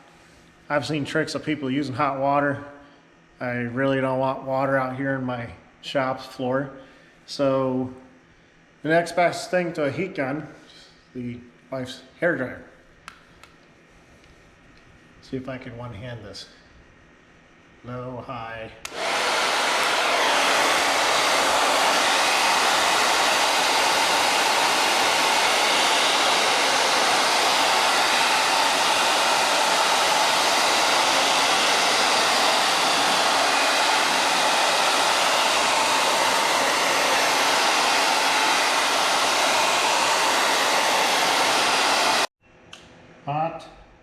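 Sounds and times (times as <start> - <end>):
hair dryer blowing air: 18.8 - 42.3.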